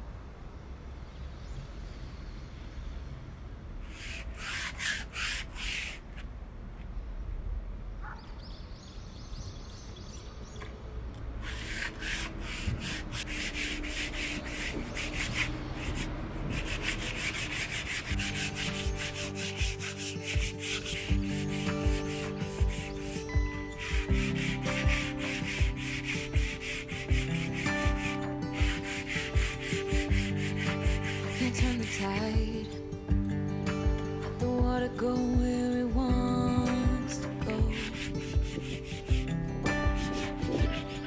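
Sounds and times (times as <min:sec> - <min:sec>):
sandpaper rubbing on wood: 0:11.8 - 0:23.1, 0:28.8 - 0:29.2.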